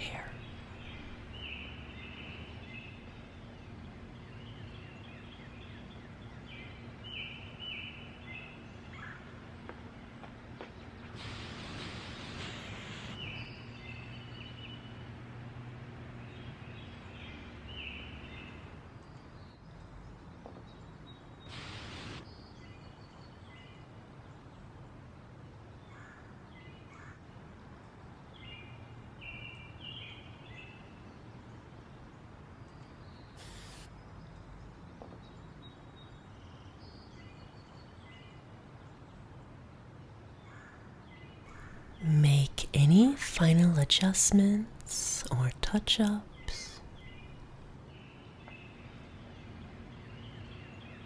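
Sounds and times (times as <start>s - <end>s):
birds chirping: 0.0s - 2.2s, 41.5s - 47.7s
woodland ambience: 0.0s - 3.0s, 41.5s - 47.7s.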